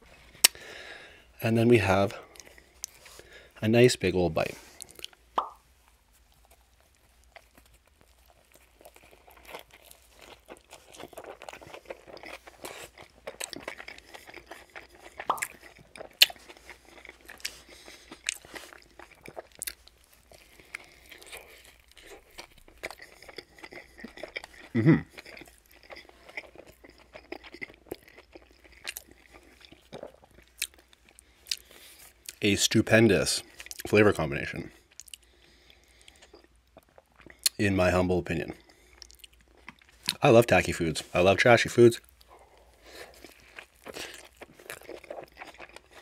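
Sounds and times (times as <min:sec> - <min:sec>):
crunchy chewing: 0:04.5 - 0:32.4, 0:42.0 - 0:46.0
low mouth sound: 0:24.7 - 0:25.1.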